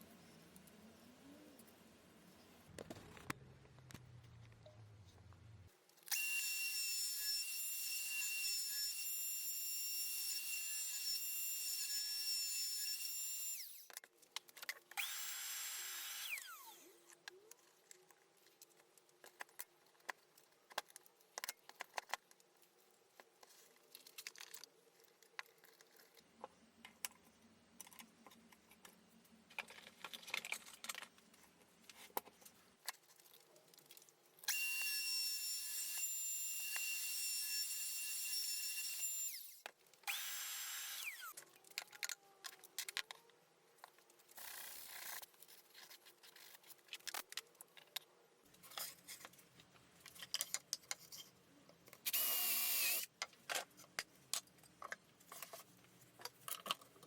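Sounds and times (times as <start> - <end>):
clicks and knocks of handling: 53.2 - 57.0.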